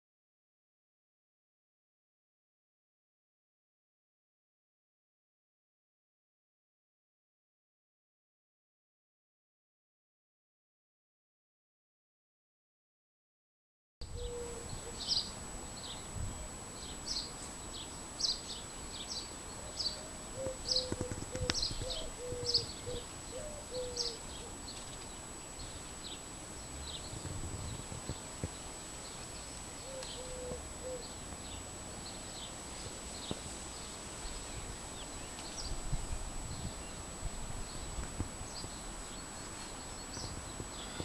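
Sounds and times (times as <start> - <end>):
lower evenly spaced bird notes: 14.1 - 41.0
birds chirping: 14.2 - 41.0.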